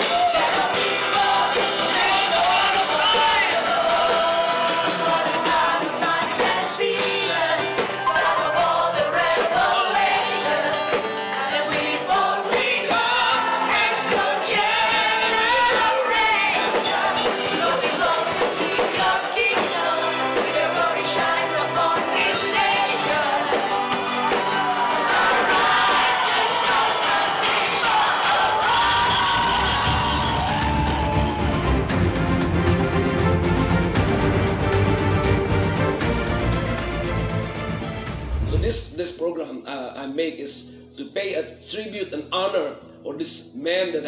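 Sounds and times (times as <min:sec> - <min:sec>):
worship music with singing: 0:00.0 - 0:31.8.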